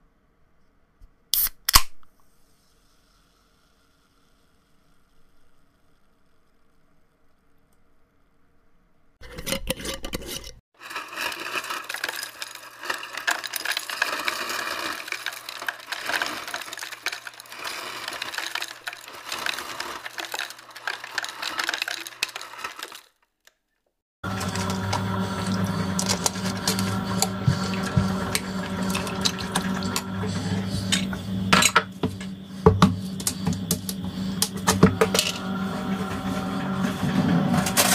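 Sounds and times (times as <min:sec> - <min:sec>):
humming appliance: 0:02.3 - 0:09.5, 0:10.8 - 0:23.1, 0:24.2 - 0:37.9
kitchen items clattering: 0:09.2 - 0:23.2, 0:24.2 - 0:37.9.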